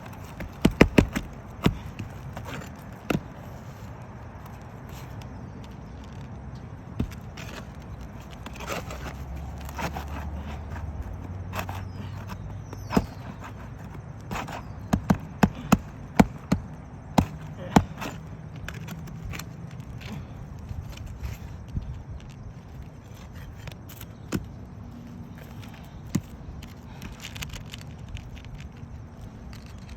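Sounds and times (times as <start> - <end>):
hand tools knocking shingles: 0.0 - 3.3, 11.5 - 18.2.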